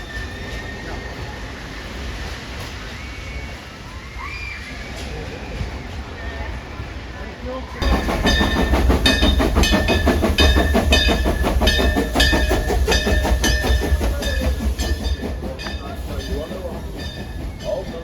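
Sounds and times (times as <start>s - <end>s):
railroad cars rumbling on track: 0.0s - 18.0s
rapid irregular clanking: 7.8s - 18.0s.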